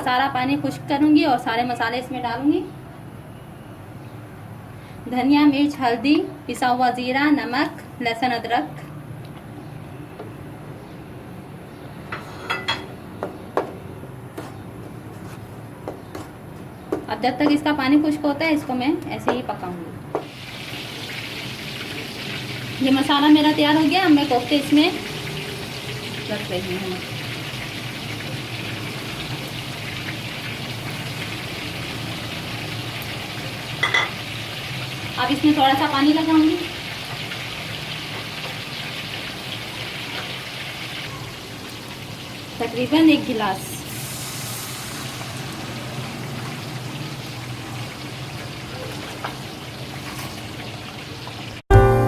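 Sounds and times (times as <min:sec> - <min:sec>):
masala sizzling in a pan: 0:20.2 - 0:52.0
brief sharp sound: 0:51.7 - 0:52.0.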